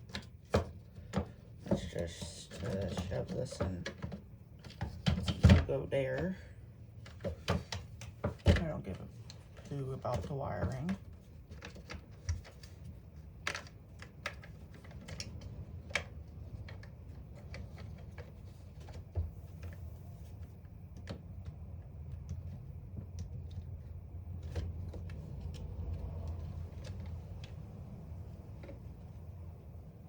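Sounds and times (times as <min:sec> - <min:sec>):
clicks and taps of parts: 0:10.9 - 0:19.0.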